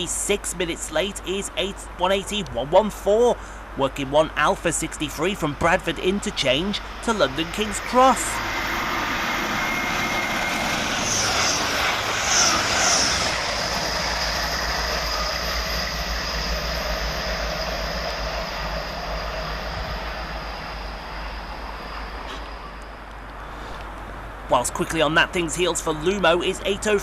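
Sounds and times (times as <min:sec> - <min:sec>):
train wheels rumbling on rail: 0:04.4 - 0:27.0
high wheel squeals: 0:06.3 - 0:23.8.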